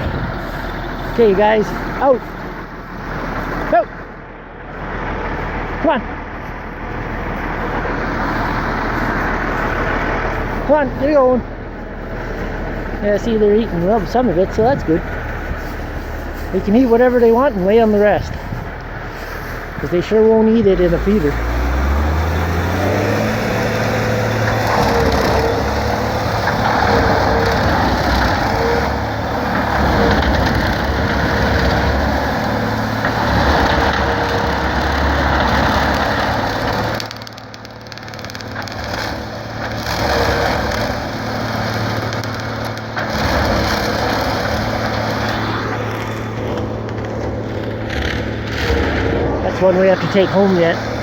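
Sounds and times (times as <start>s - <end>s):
grass being shredded: 0.0s - 51.0s
tractor engine hum: 0.0s - 51.0s
steady whine: 45.6s - 51.0s.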